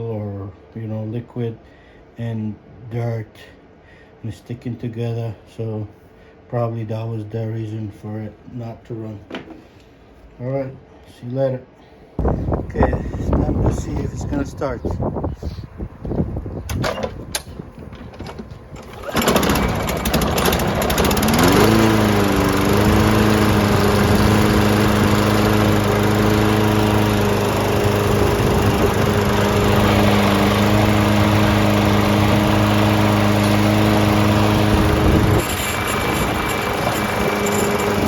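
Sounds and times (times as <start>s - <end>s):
lawn mower engine starting: 16.7s - 38.0s.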